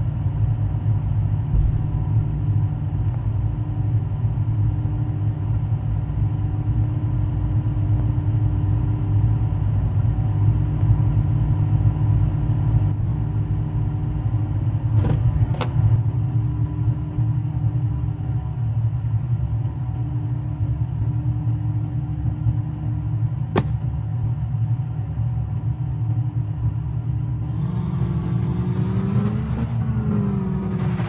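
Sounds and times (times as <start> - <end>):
race car engines rumbling: 11.6 - 17.0, 23.5 - 24.0, 27.4 - 31.0.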